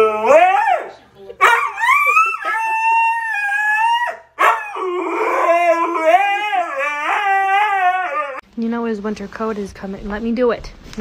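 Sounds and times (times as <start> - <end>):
husky howling: 0.0 - 8.4.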